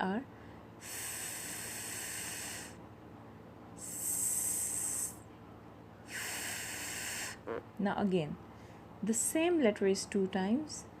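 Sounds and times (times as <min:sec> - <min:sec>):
person hissing: 0:00.8 - 0:02.8, 0:03.8 - 0:05.2, 0:06.1 - 0:07.4.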